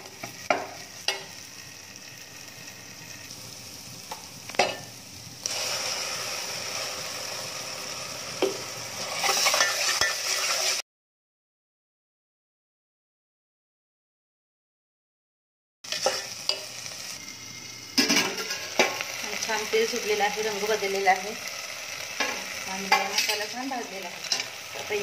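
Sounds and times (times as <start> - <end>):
masala sizzling in hot oil: 0.0 - 10.8, 15.8 - 25.0.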